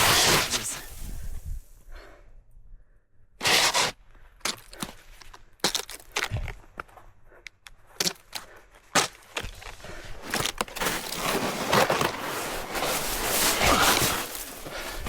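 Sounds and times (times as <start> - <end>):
snowboard sliding over snow: 0.0 - 1.4, 10.8 - 15.0
snowboard knocks and scrapes: 10.6 - 15.0.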